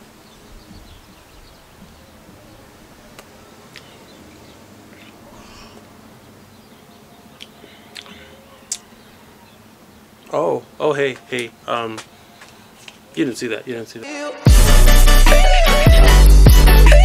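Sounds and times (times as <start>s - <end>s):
faint bird chirps: 0.0s - 12.8s.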